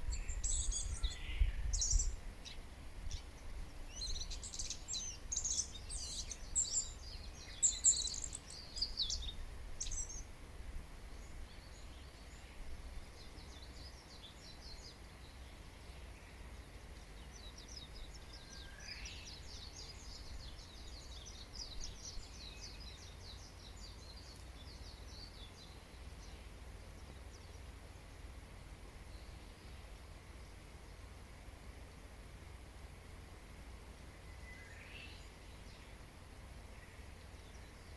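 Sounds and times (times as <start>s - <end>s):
birds chirping and singing: 0.0s - 3.2s, 3.9s - 10.2s.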